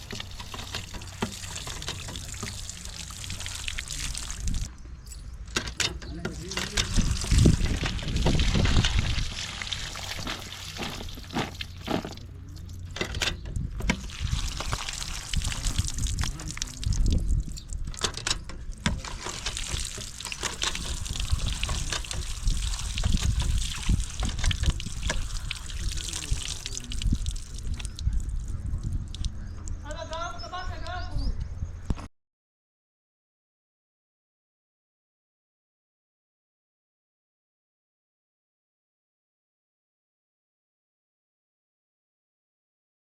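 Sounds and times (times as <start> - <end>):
water trickling and pouring: 0.0 - 4.7, 6.2 - 13.1, 13.8 - 29.4
clicks and knocks: 5.5 - 7.1.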